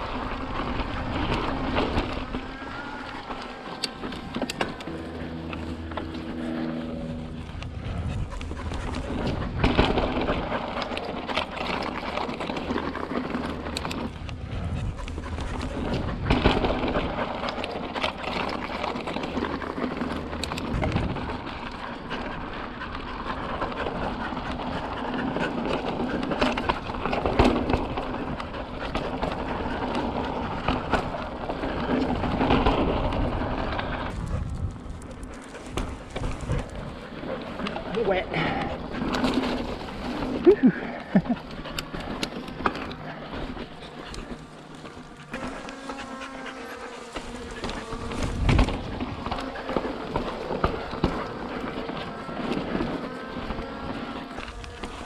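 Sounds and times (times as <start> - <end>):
bike tyres rolling over rock: 0.0 - 55.0
wind on microphone: 14.0 - 17.4, 20.5 - 21.7, 26.4 - 37.4, 47.3 - 49.6.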